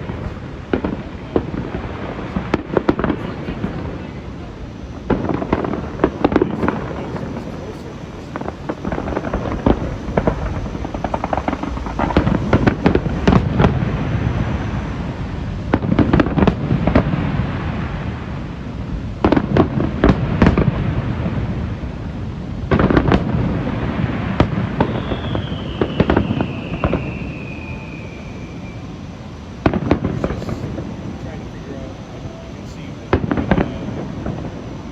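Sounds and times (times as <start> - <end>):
firework shell bursts booming: 0.0 - 18.4, 29.6 - 31.3, 32.7 - 34.7
fireworks crackling: 0.0 - 34.9
high falling firework whistle: 22.8 - 30.8.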